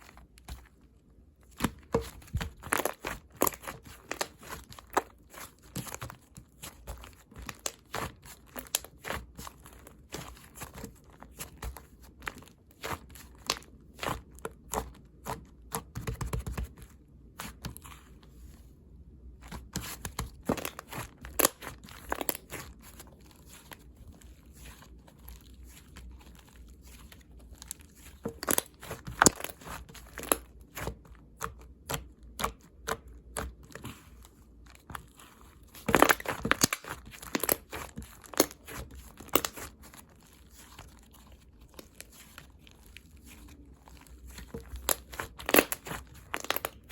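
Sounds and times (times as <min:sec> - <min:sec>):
wet slime squished by hand: 0:19.4 - 0:46.9.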